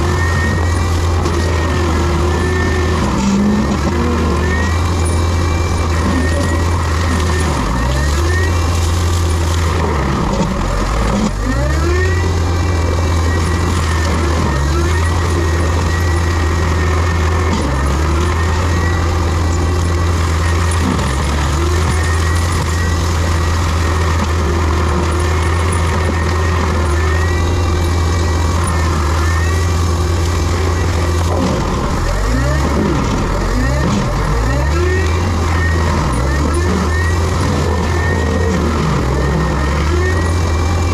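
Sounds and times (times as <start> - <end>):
diesel engine under load: 0.0 - 40.9
high mechanical whine: 0.0 - 40.9.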